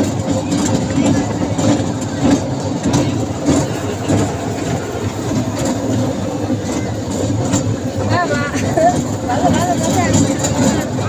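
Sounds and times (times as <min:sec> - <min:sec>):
carriages knocking and rattling: 0:00.0 - 0:11.0
ride train engine hum: 0:00.0 - 0:11.0.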